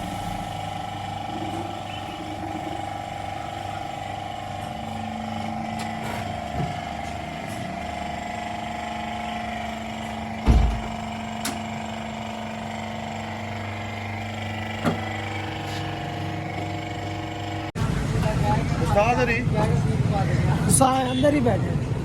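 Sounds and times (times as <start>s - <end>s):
engine idling: 0.0s - 21.6s
loud thump: 10.4s - 11.0s.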